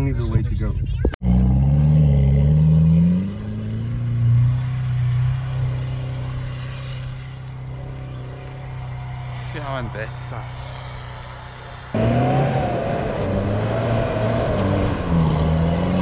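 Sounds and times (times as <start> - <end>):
pickup engine revving: 12.0 - 16.0.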